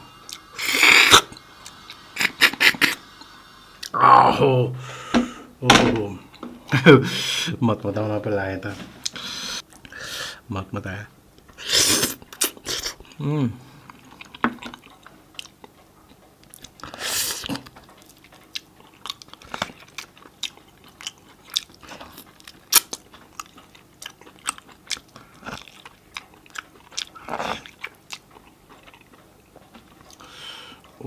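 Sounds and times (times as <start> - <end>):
person chewing on a bone: 11.9 - 31.0.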